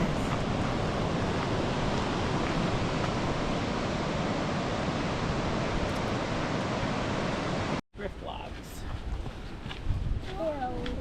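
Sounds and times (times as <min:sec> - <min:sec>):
ocean surf rushing: 0:00.0 - 0:07.8.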